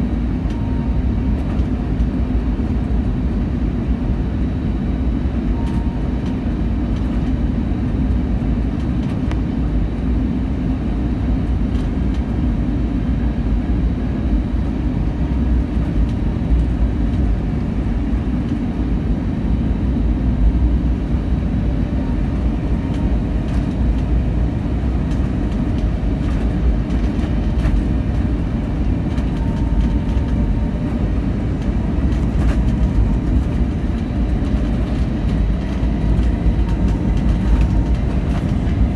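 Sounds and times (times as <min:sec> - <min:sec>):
wind buffeting vehicle cab: 0:13.2 - 0:38.9.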